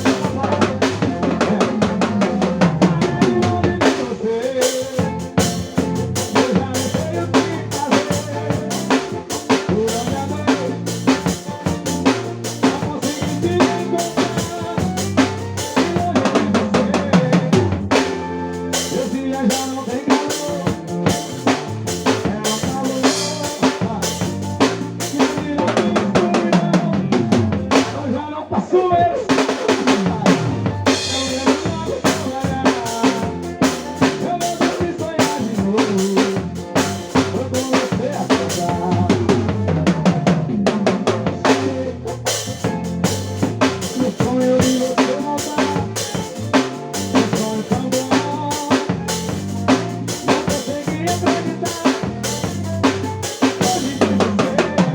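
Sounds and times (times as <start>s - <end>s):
recorded song with singer: 0.0s - 10.8s, 18.8s - 21.3s, 22.0s - 24.4s, 25.0s - 39.9s, 43.8s - 49.3s, 50.2s - 54.9s
drum kit playing: 0.0s - 28.2s, 29.0s - 54.9s.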